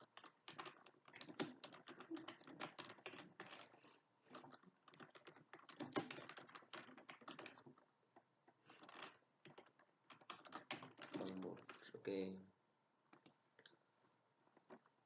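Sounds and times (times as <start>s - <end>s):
keyboard typing: 0.0s - 7.8s, 8.7s - 12.0s.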